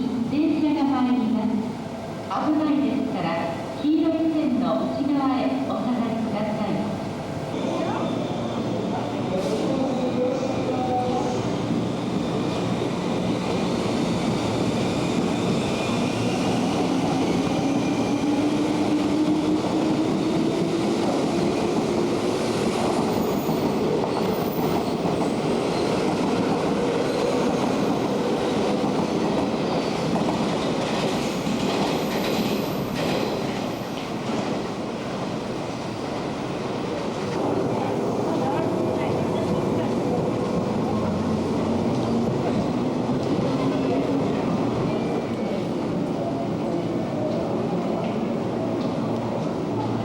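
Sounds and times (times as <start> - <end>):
train wheels clattering on rails: 10.4 - 35.4, 37.1 - 50.0.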